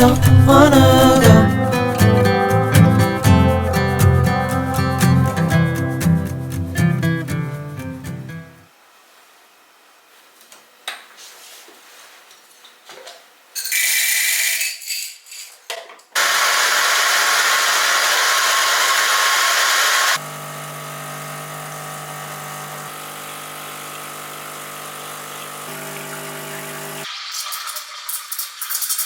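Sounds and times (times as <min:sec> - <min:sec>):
small electric motor whirring: 0:16.2 - 0:27.0.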